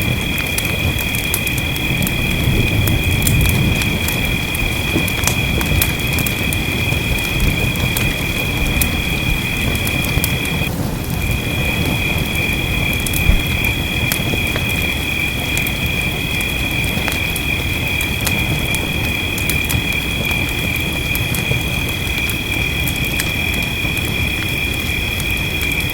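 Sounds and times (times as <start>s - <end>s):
low rumble: 0.0s - 19.8s
fireplace crackling: 0.0s - 25.9s
steady rain: 0.0s - 25.9s.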